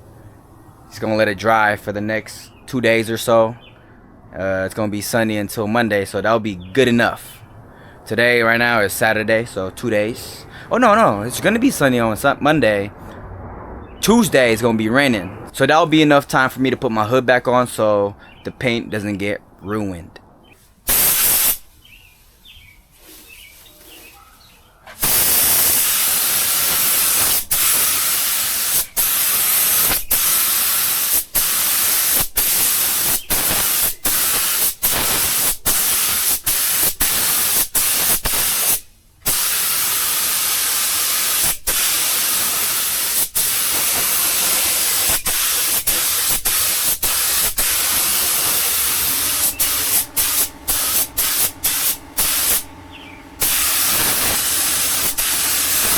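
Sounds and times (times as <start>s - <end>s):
paint sprayer hissing: 20.6s - 22.4s, 24.9s - 55.9s.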